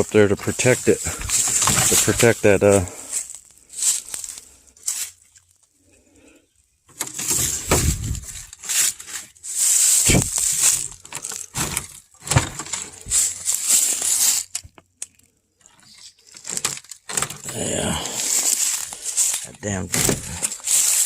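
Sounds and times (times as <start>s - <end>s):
crunching and rustling dry brush: 0.0s - 21.0s
dull thuds: 7.4s - 8.4s.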